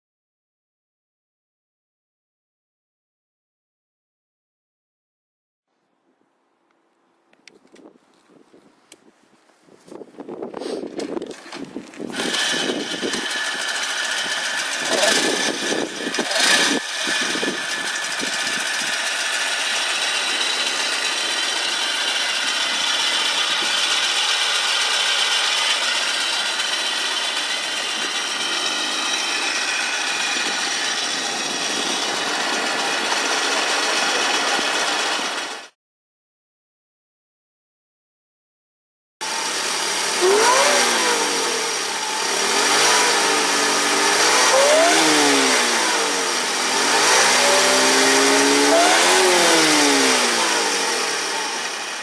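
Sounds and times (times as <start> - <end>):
pitbike engine with high whine: 7.3 - 35.8, 39.2 - 52.0.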